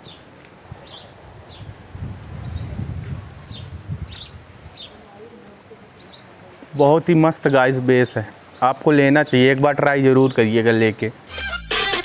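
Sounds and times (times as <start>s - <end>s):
birds chirping: 2.4s - 2.7s, 3.5s - 9.1s.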